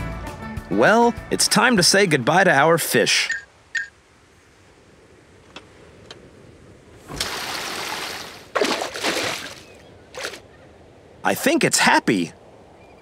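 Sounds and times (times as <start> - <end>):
water sloshing: 7.0 - 10.5
cartoon water splashing: 7.1 - 9.6.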